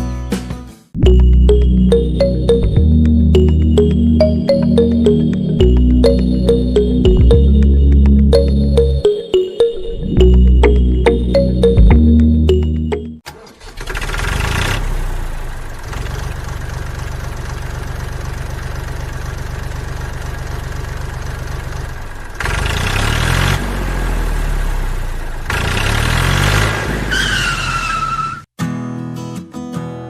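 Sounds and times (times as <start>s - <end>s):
mini tractor motor chugging: 13.3s - 23.4s.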